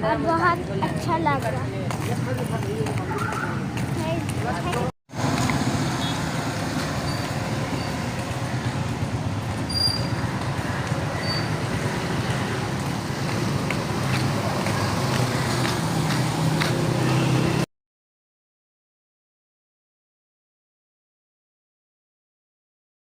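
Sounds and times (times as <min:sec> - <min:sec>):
traffic on wet street: 0:00.0 - 0:17.7.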